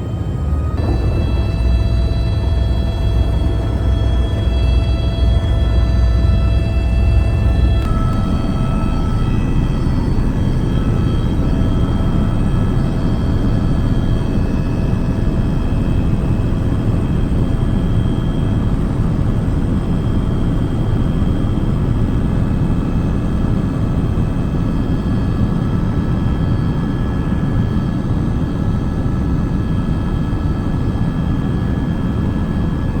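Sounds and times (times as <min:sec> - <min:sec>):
helicopter whining tones: 0:00.0 - 0:24.6
helicopter rumble: 0:00.0 - 0:33.0.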